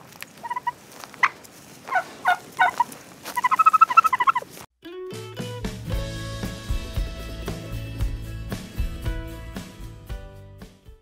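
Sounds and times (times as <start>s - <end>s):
turkeys gobbling: 0.4s - 4.5s.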